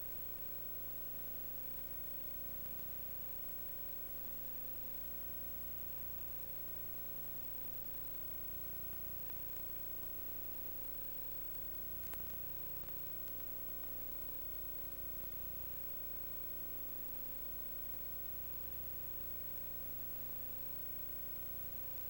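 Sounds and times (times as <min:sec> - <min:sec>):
faint click: 0:12.0 - 0:14.0.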